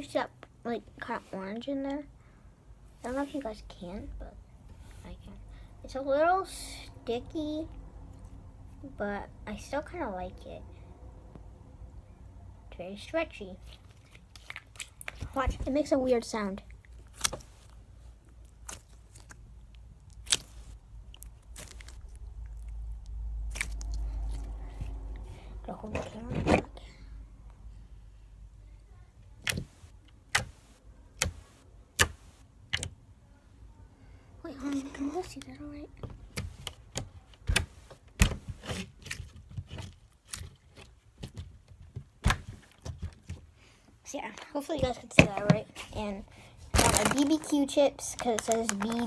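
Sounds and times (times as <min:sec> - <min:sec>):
slime squelching and popping: 0:16.7 - 0:25.0.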